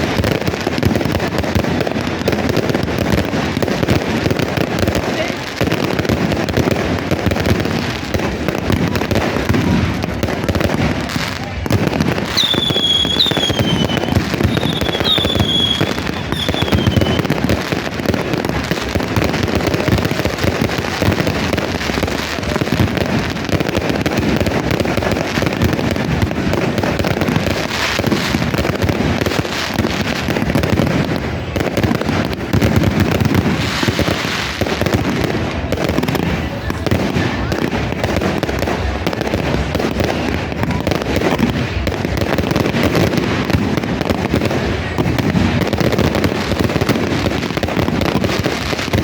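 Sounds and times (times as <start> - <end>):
firecrackers crackling: 0.0 - 49.0
falling firework whistles: 12.2 - 17.6.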